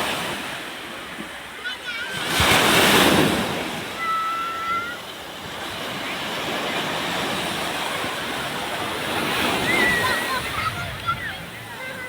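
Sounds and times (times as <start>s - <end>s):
waves breaking on beach: 0.0s - 12.0s
wind on microphone: 8.4s - 12.0s.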